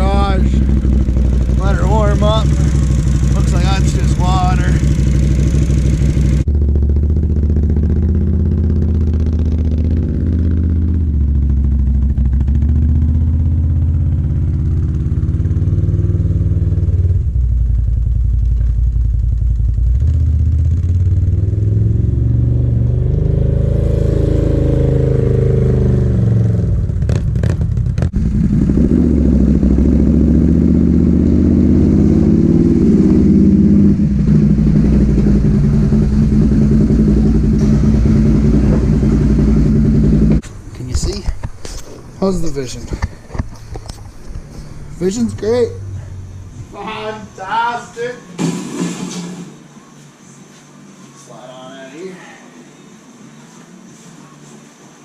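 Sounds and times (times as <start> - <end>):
atv engine revving: 0.0 - 40.5.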